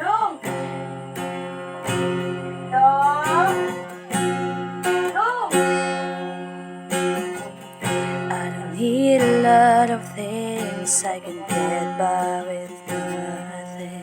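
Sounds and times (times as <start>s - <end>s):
acoustic guitar strumming chords: 0.0s - 14.0s
person singing wordless glides: 8.3s - 14.0s.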